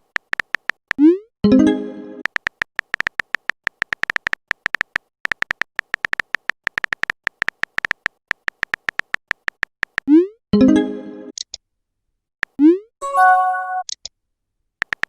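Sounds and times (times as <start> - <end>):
rapid electronic beeping ticks: 2.2 - 10.1.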